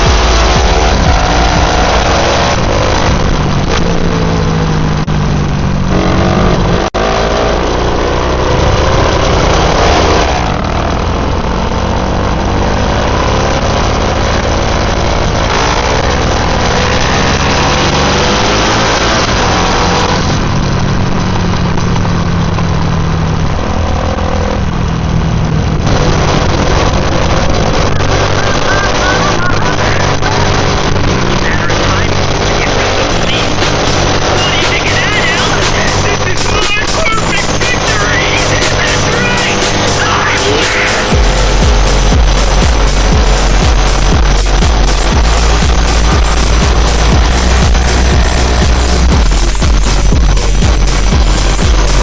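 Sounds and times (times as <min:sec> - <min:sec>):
motorcycle engines revving: 0:00.0 - 0:52.0.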